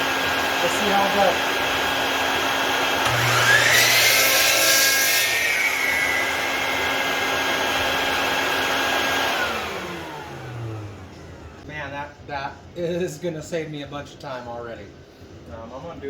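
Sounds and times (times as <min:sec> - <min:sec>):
shop vacuum running: 0:00.0 - 0:11.7
miter saw motor whine: 0:02.5 - 0:11.6
saw blade cutting wood: 0:03.0 - 0:08.3.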